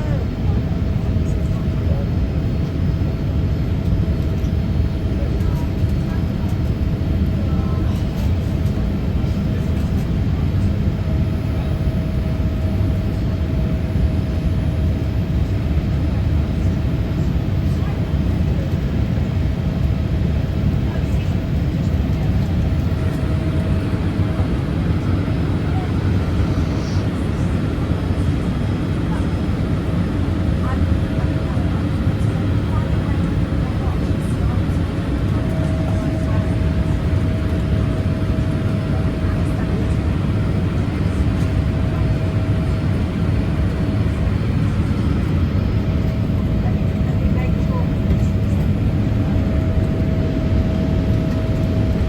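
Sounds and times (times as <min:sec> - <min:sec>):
airplane cabin engine roar: 0:00.0 - 0:52.0.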